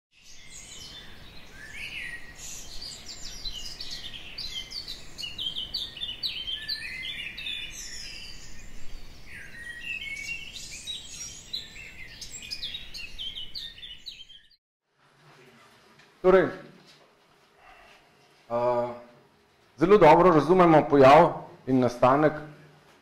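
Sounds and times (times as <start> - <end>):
songbirds chirping and trilling: 0.1 - 14.6.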